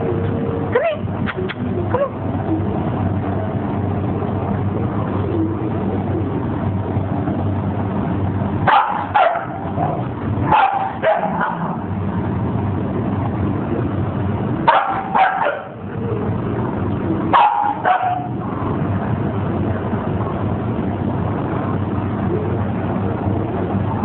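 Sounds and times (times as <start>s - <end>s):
steady low hum: 0.0s - 24.0s
dog barking in yips: 8.7s - 9.7s, 10.5s - 11.8s, 14.7s - 15.8s, 17.3s - 18.3s.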